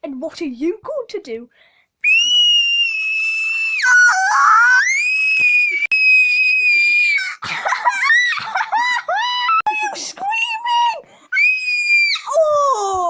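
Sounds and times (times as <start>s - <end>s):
high-pitched scream: 2.0s - 7.4s, 11.3s - 12.4s.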